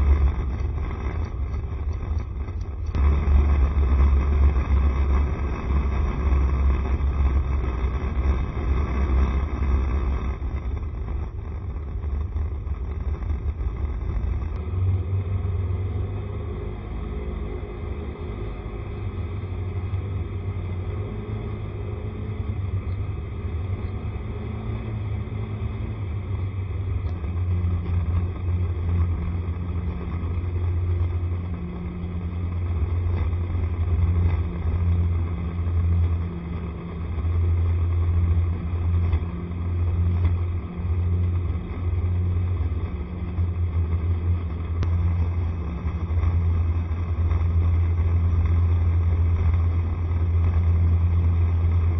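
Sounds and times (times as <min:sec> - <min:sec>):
scooter engine rumble: 0:00.0 - 0:51.9.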